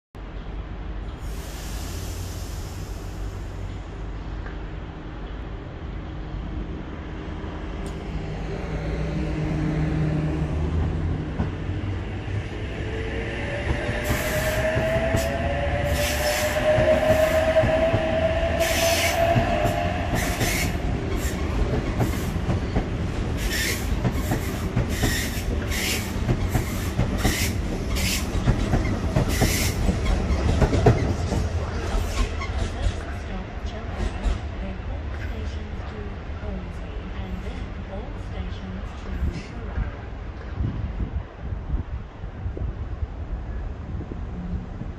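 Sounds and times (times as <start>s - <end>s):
train rumble: 0.2s - 44.9s
train whine rising in pitch: 11.7s - 22.6s.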